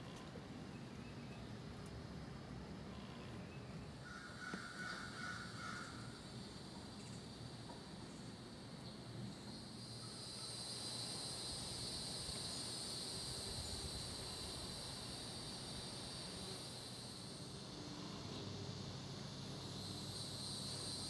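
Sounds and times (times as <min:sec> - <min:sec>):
high insect buzz: 0:02.1 - 0:21.0
bird calling: 0:02.9 - 0:06.2.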